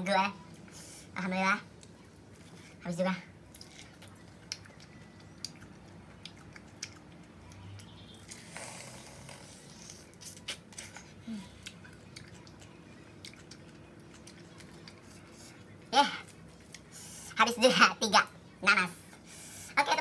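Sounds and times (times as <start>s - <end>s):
person biting and chewing pineapple: 3.4s - 17.3s.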